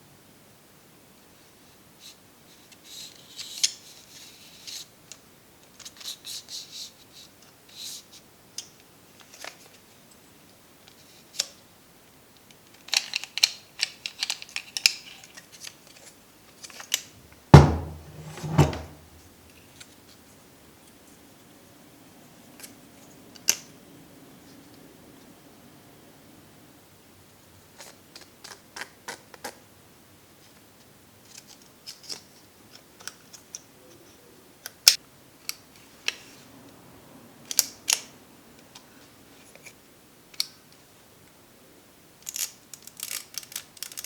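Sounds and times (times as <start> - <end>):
heavy knocks: 17.6 - 19.2.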